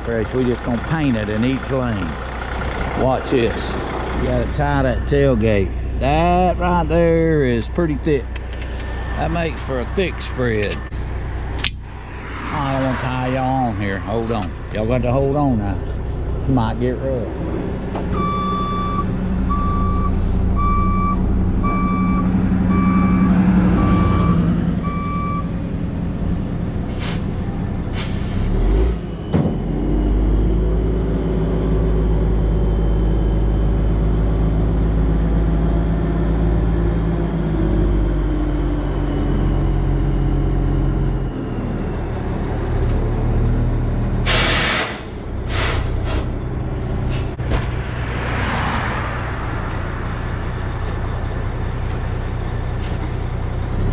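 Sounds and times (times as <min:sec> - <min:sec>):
dump truck engine under load: 0:00.0 - 0:53.9
warning beep: 0:18.2 - 0:25.5
sharp hissing bursts: 0:44.3 - 0:46.3.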